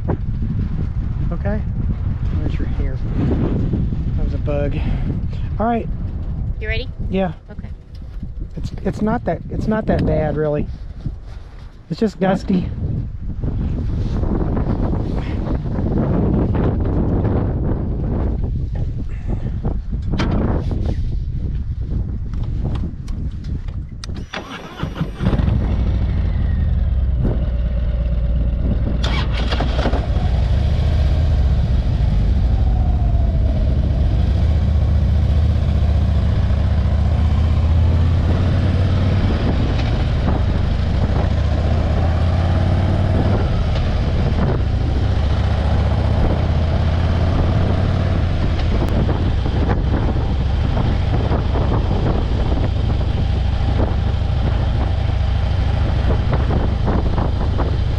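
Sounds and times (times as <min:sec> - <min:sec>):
wind noise on microphone: 0:00.0 - 0:57.9
motorcycle engine running: 0:24.7 - 0:57.9.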